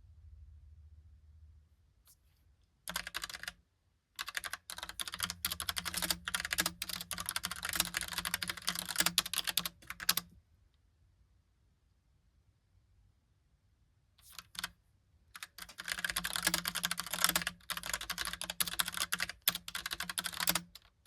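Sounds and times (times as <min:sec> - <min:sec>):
mechanical keyboard typing: 0:02.9 - 0:03.6, 0:04.2 - 0:10.3, 0:14.2 - 0:14.7, 0:15.4 - 0:21.0.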